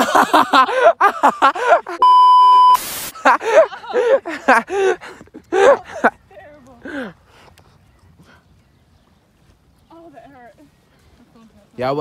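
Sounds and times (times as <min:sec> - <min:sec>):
electronic censor bleep: 0:02.0 - 0:02.8
burst of hiss: 0:02.8 - 0:03.3.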